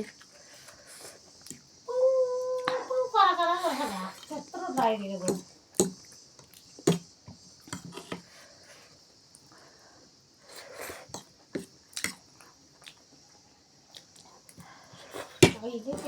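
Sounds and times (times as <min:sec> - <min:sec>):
chewing or slurping: 0:10.4 - 0:13.1.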